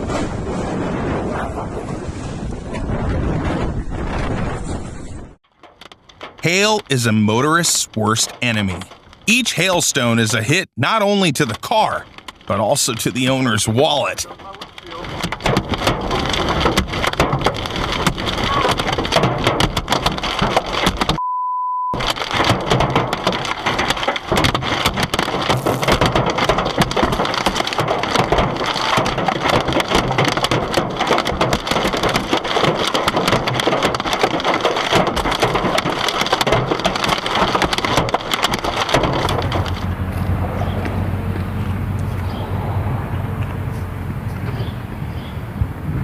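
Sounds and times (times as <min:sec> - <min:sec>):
hail clattering on a car: 0:05.5 - 0:09.3, 0:11.6 - 0:21.2, 0:22.0 - 0:40.9
short steady beep: 0:21.2 - 0:22.0.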